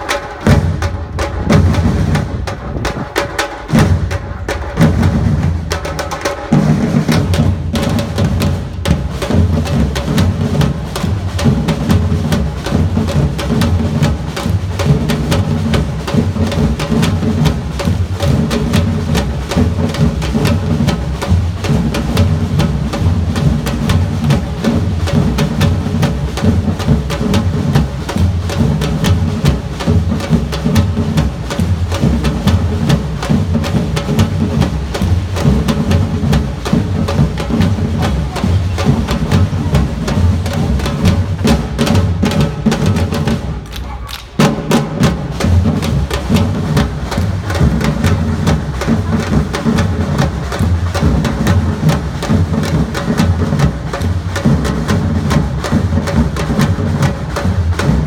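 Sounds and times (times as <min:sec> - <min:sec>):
deep bass drums beating: 0:00.0 - 0:43.7
drum band playing: 0:00.0 - 0:58.0
snare drum: 0:00.0 - 0:58.0.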